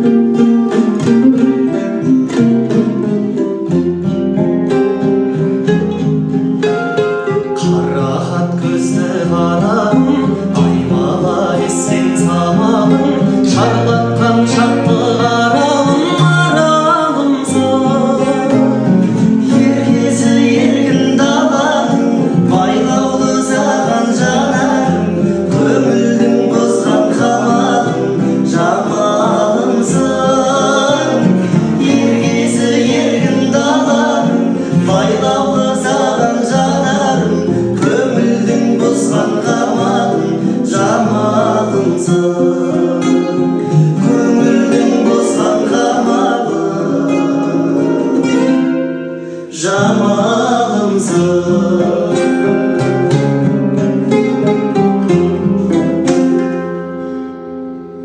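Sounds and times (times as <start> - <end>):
guitar and instrumental backing: 0.0 - 58.0
man singing: 7.5 - 48.7, 49.3 - 53.3.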